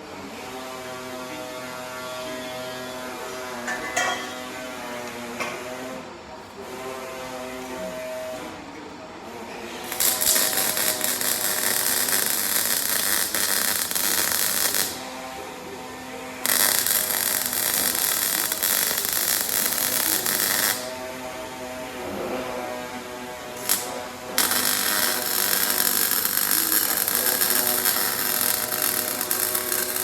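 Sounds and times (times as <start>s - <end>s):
loud hissing from metal work: 9.8s - 21.2s, 23.4s - 30.0s.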